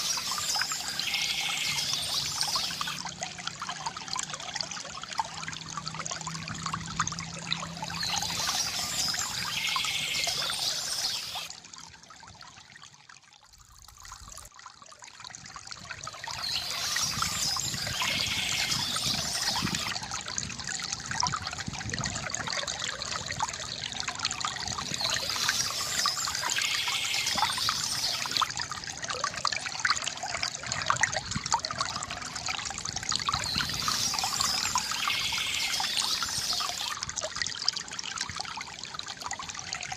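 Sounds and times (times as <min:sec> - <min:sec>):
birds chirping: 0:00.0 - 0:03.0, 0:07.8 - 0:11.5, 0:16.4 - 0:19.9, 0:25.0 - 0:28.5, 0:33.4 - 0:36.9
bamboo fountain trickling water: 0:00.0 - 0:39.9.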